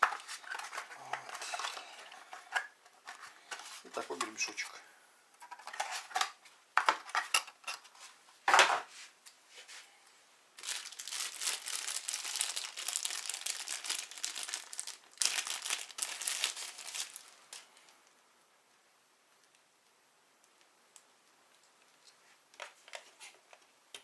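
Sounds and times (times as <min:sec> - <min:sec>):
plastic packaging crinkling: 0:00.0 - 0:04.6, 0:10.6 - 0:18.0.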